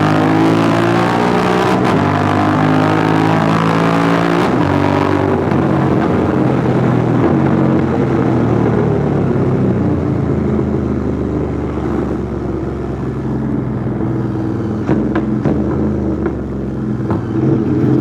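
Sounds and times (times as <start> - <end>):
motorcycle engine running: 5.2 - 18.0.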